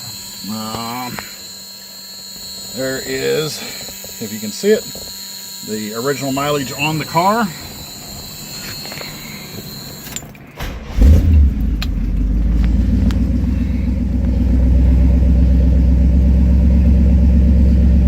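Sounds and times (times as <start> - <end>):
car engine starting and idling: 10.1 - 18.0.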